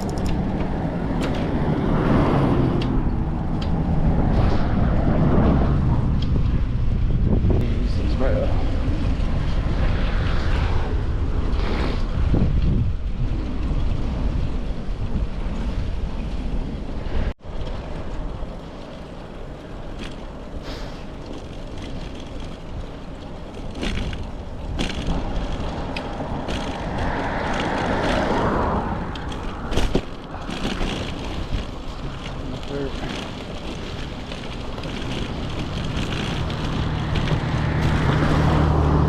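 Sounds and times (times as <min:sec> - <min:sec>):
vehicle passing by: 0:00.0 - 0:06.8, 0:24.8 - 0:39.0
bicycle tyres on pavement: 0:00.0 - 0:39.0
wind rumble on microphone: 0:00.0 - 0:39.0.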